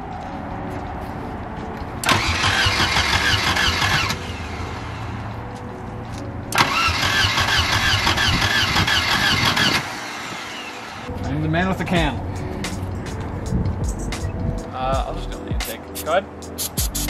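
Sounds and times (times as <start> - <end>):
car engine cranking on starter: 2.0 - 4.4, 6.5 - 10.7.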